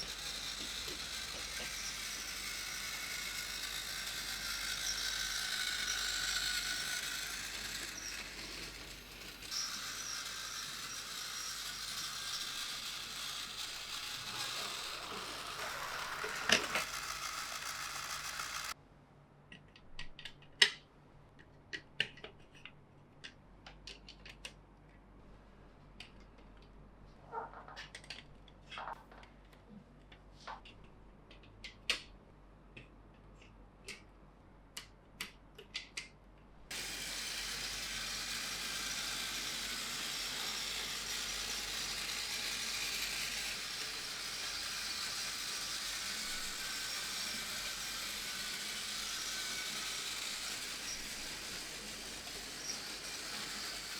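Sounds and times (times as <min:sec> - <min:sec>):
plastic toy track clicking: 0:00.0 - 0:18.8, 0:36.7 - 0:53.9
toy trains whirring on track: 0:00.0 - 0:18.8, 0:36.7 - 0:53.9.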